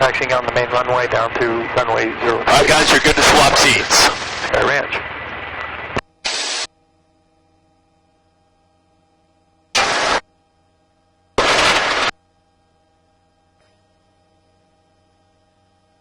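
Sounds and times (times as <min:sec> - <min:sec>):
faint steady hum: 0:00.0 - 0:16.0
radio static bursts: 0:02.2 - 0:05.0, 0:06.2 - 0:06.7, 0:09.8 - 0:10.2, 0:11.4 - 0:12.1.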